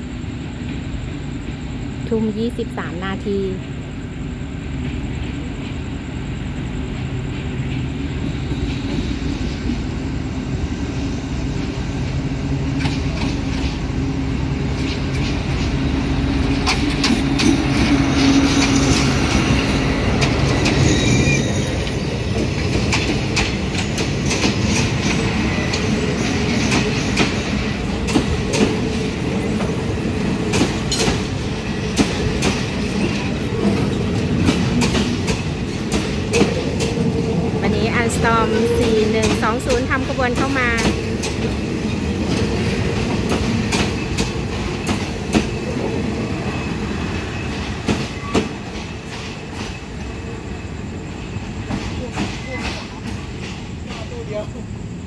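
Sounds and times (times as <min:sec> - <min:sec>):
train rumbling: 0:00.0 - 0:55.0
wheels clacking over rail joints: 0:14.6 - 0:50.3, 0:51.6 - 0:54.5
wheel squeal: 0:20.6 - 0:22.1.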